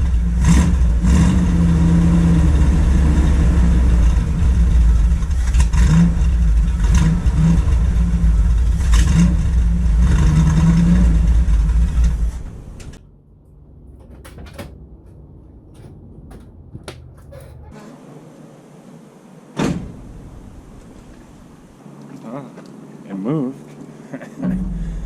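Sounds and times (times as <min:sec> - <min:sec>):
vehicle engine running loud: 0:00.0 - 0:18.8, 0:20.0 - 0:25.0
clicks and knocks: 0:13.4 - 0:17.8.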